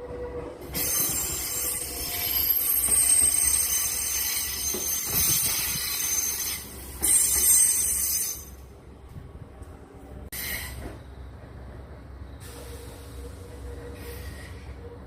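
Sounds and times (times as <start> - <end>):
train rumble: 0.0 - 15.0
metallic wheel squeal: 0.7 - 8.6.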